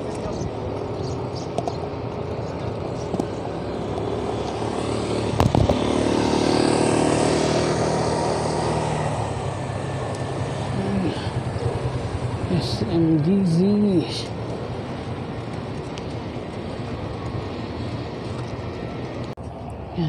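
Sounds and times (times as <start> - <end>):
road traffic: 0.0 - 20.0
vehicle engine passing: 0.0 - 20.0.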